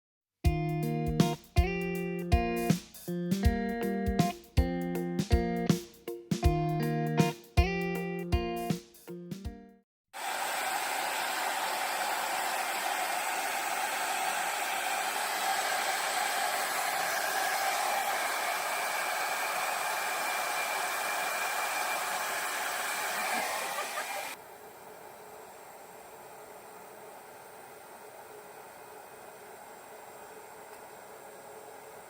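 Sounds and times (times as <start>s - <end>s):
hair dryer running: 10.2s - 24.4s.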